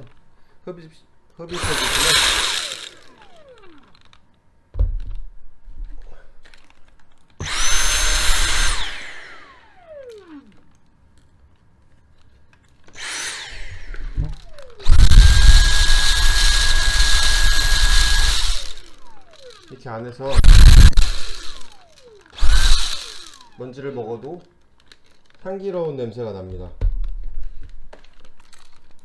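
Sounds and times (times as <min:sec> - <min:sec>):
vacuum cleaner motor whine: 0:01.5 - 0:04.0, 0:07.4 - 0:10.7, 0:12.9 - 0:24.0.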